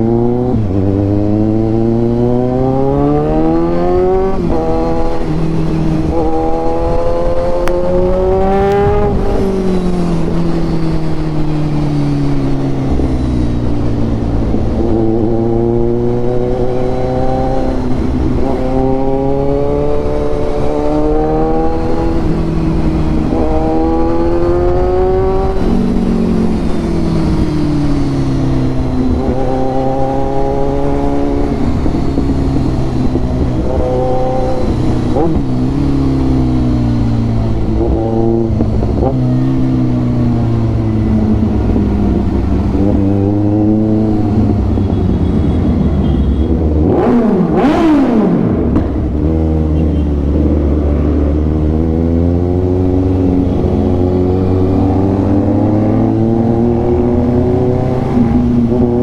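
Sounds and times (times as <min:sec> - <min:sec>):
motorcycle engine revving through gears: 0:00.0 - 0:59.0.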